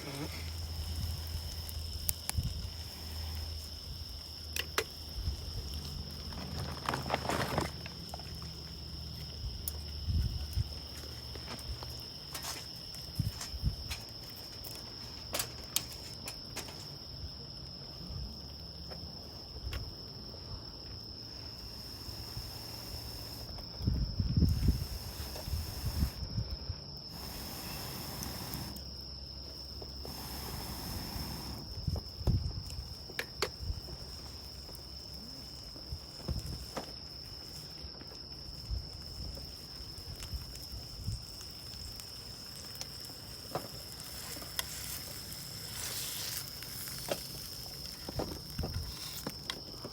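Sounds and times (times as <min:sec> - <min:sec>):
insect trilling: 0:00.0 - 0:17.6, 0:21.0 - 0:49.9
knocks and rustles of gear: 0:06.3 - 0:08.3.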